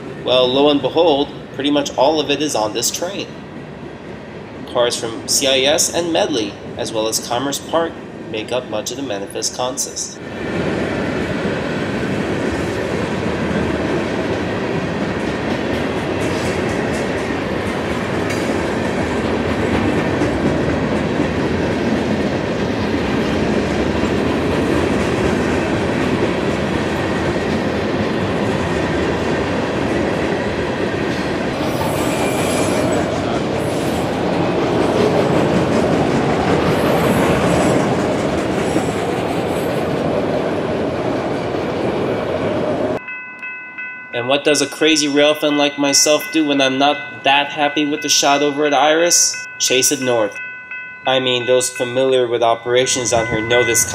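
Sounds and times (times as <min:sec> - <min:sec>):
freight train wheels clicking: 0:10.2 - 0:46.6.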